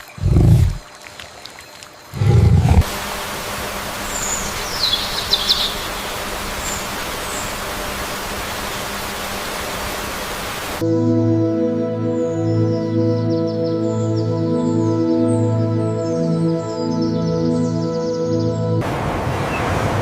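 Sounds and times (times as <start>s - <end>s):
rushing water: 0.0s - 2.9s, 18.8s - 20.0s
high falling bird chirps: 4.3s - 7.5s
soft ambient music: 10.8s - 18.9s.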